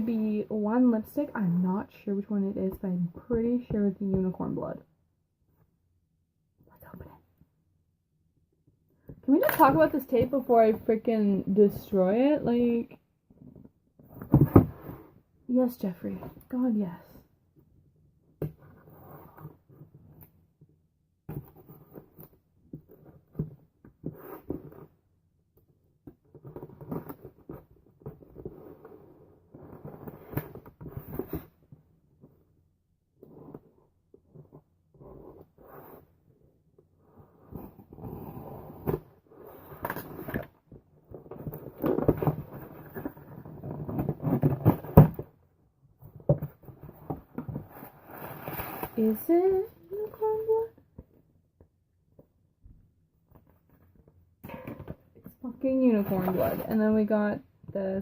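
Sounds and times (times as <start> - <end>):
cardboard rustling and scratching: 21.3 - 25.0, 26.1 - 32.5, 33.2 - 45.4, 46.0 - 51.2, 53.3 - 57.0
cardboard and paper rustling: 53.3 - 57.0.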